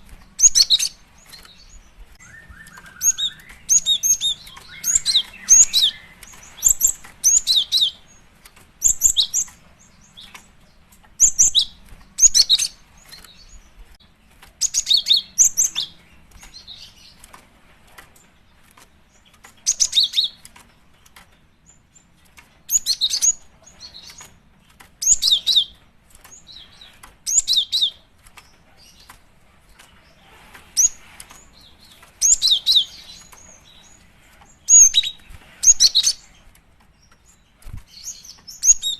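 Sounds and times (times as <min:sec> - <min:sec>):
bird high sharp chirps: 0:00.4 - 0:08.2, 0:19.6 - 0:20.5, 0:25.0 - 0:25.8, 0:30.8 - 0:36.4, 0:37.8 - 0:38.9.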